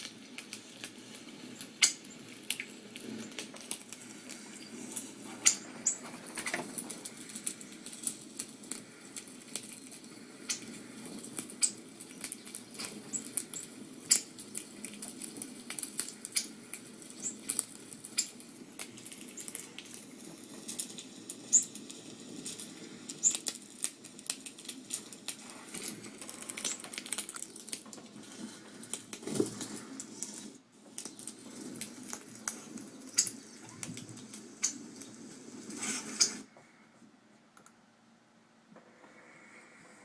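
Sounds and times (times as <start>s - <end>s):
small birds chirping: 1.5s - 6.6s, 8.8s - 14.4s, 16.2s - 18.4s, 21.4s - 21.8s, 23.1s - 23.5s, 31.1s - 35.3s.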